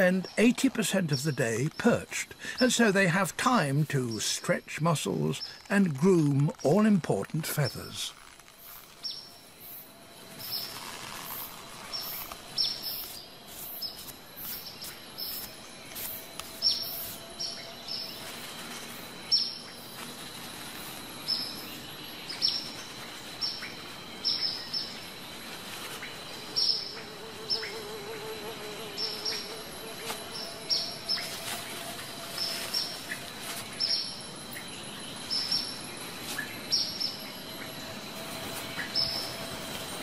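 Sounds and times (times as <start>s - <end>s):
faint high whine: 7.1s - 40.0s
bird chirping: 28.9s - 40.0s.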